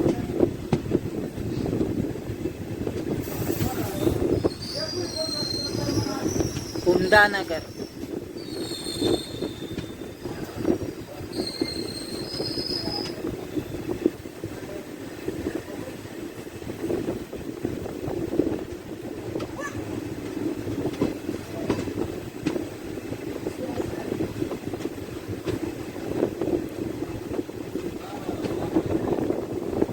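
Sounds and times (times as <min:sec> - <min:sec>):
train rail rumble: 0:00.0 - 0:29.9
high wheel squeals: 0:03.2 - 0:13.8.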